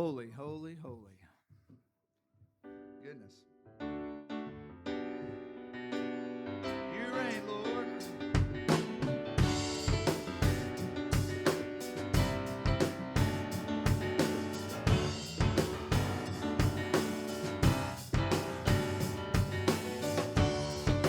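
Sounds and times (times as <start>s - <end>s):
drum kit beat: 7.4s - 21.0s.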